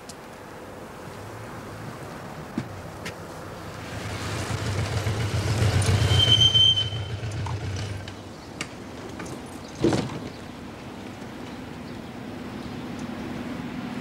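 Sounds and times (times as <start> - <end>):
train rumbling past: 3.6 - 9.2
wheel squeal: 5.2 - 8.1.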